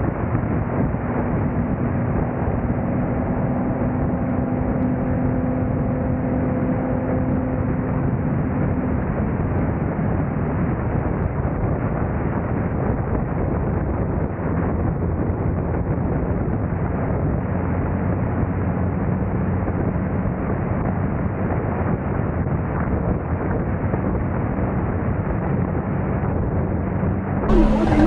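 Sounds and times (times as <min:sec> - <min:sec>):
road and wind noise: 0:00.0 - 0:28.0
car engine droning: 0:01.3 - 0:10.7, 0:27.5 - 0:28.0.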